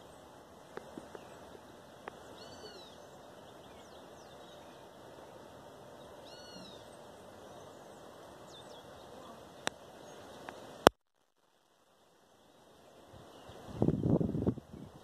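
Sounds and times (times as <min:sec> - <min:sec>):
steady background hiss: 0:00.0 - 0:15.0
bird call rising and falling: 0:02.1 - 0:05.0, 0:06.0 - 0:10.6
thin high bird chirps: 0:02.2 - 0:05.0, 0:06.0 - 0:10.6.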